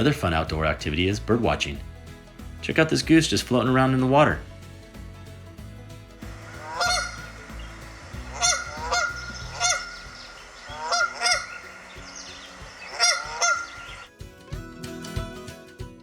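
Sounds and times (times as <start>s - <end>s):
goose honking: 6.4s - 14.1s.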